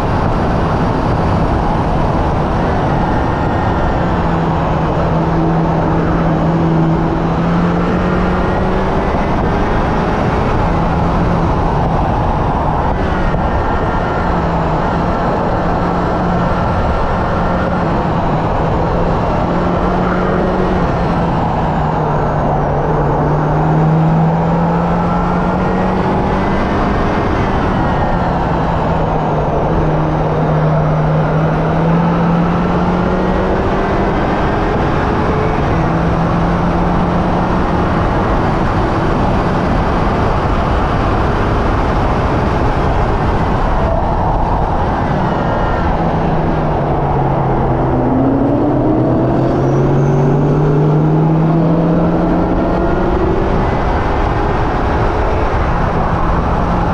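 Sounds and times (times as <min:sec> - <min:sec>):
car engine revving through gears: 0:00.0 - 0:56.9
tyre and wind noise: 0:00.0 - 0:56.9.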